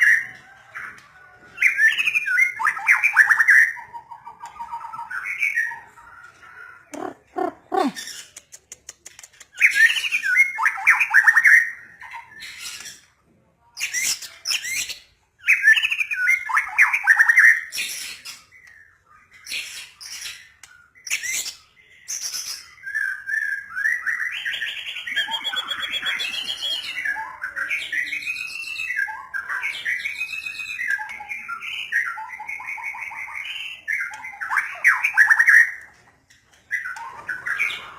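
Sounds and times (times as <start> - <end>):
bird singing whistles and trills: 13.8 - 35.8.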